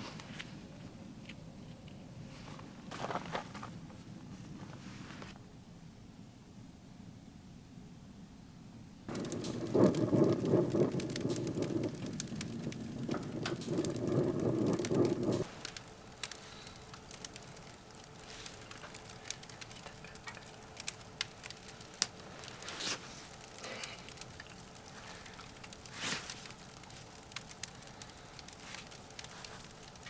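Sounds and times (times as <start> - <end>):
wood fire crackling: 0.0 - 5.4, 9.1 - 30.0
dense rushing crackle: 9.1 - 30.0.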